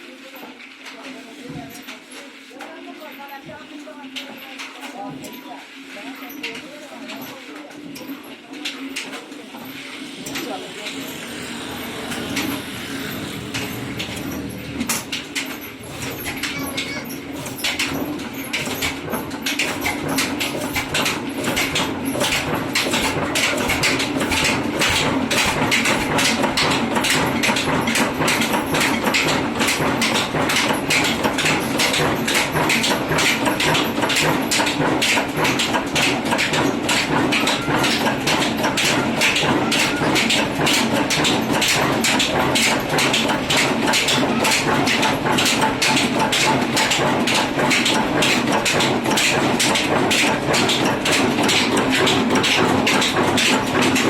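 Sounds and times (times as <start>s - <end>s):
stationary diesel engine knocking: 11.0s - 54.0s.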